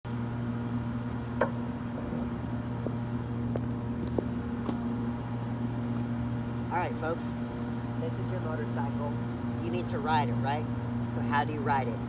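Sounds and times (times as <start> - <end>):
steady low hum: 0.1 - 12.0
light clicks and clinks: 1.2 - 6.7.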